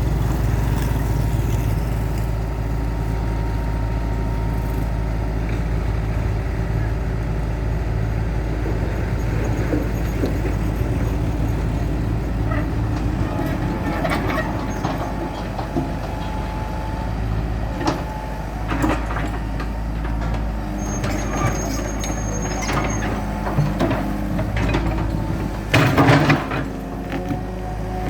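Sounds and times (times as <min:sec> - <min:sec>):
excavator engine running: 0:00.0 - 0:28.0
clanks and knocks: 0:08.6 - 0:16.7, 0:17.7 - 0:27.6
thin high squeal: 0:20.8 - 0:23.2.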